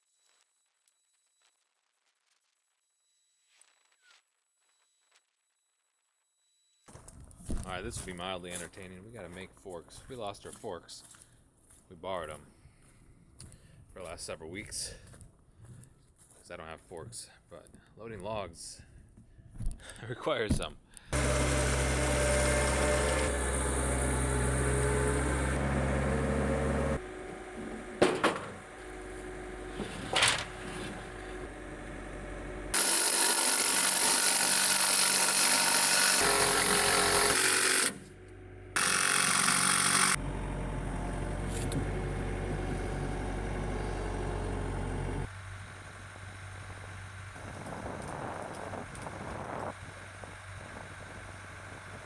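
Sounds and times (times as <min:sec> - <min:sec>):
hissing power tool: 0:21.2 - 0:29.9, 0:30.5 - 0:40.2
machine hum: 0:21.2 - 0:52.0
sharp metal knocks: 0:27.9 - 0:28.6.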